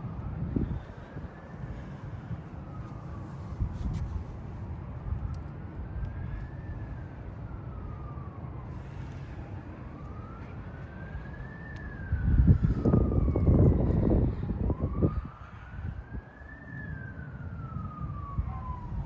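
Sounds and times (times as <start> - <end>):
low vehicle rumble: 0.0 - 19.0
siren wailing: 5.8 - 19.0.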